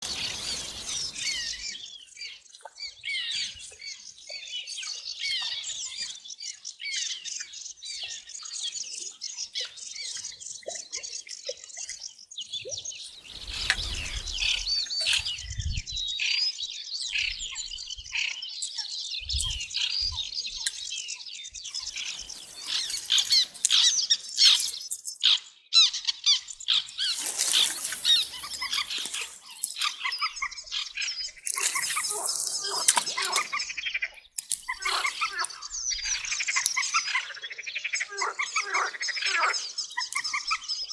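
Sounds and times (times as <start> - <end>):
songbirds singing: 0.0 - 40.9.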